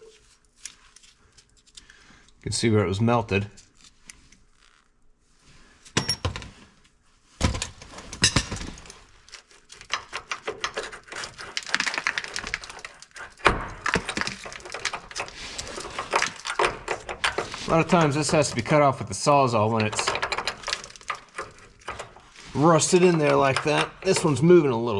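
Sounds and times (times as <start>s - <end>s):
metal knocks and clanks: 7.4s - 8.9s, 9.9s - 24.8s
metal scraping: 9.8s - 24.9s.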